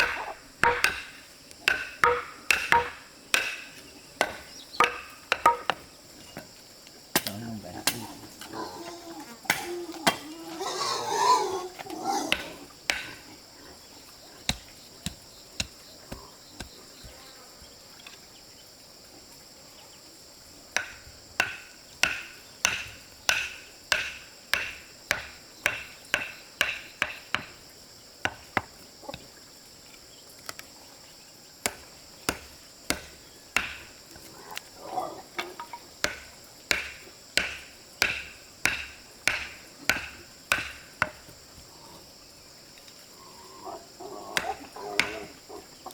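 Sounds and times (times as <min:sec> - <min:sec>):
blade chopping strikes: 0:00.0 - 0:05.8, 0:12.3 - 0:13.2, 0:20.8 - 0:27.5, 0:36.0 - 0:41.2
insects droning: 0:00.0 - 0:45.9.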